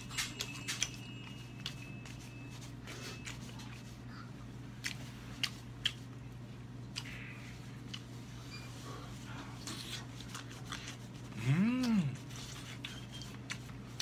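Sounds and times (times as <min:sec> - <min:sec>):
steady low hum: 0:00.0 - 0:14.0
chewing: 0:04.8 - 0:06.2, 0:06.9 - 0:08.2, 0:09.6 - 0:14.0.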